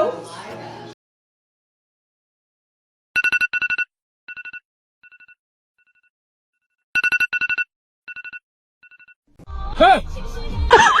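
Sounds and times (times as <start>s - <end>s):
electronic telephone ringing: 3.2s - 6.1s, 7.0s - 9.2s.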